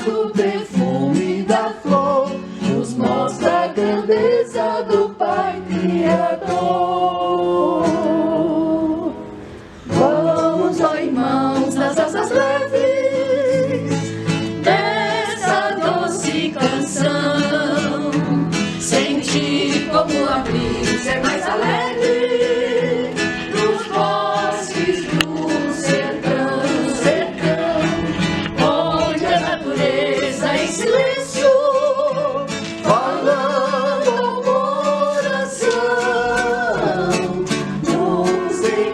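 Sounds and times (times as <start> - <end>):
person singing: 0.0 - 9.2, 9.9 - 38.9
plucked guitar: 0.0 - 38.9.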